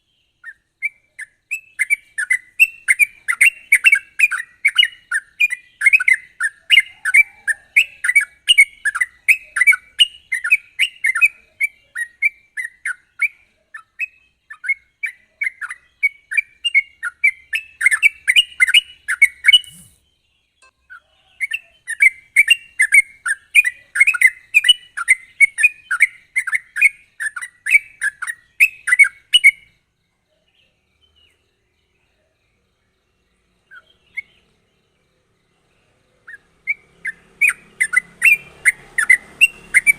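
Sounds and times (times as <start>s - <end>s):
bulbul chirping song: 0.0s - 39.9s.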